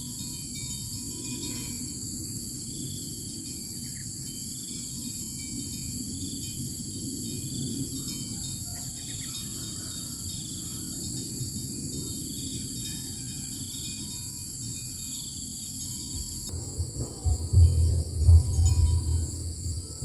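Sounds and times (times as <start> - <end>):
high insect drone: 0.0 - 20.0
low rumbling hiss: 14.7 - 20.0.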